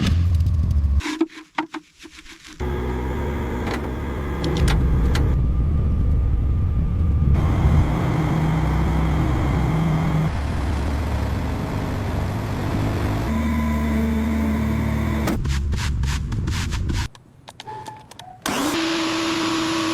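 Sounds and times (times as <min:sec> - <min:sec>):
vehicle engine running: 0:02.6 - 0:16.1.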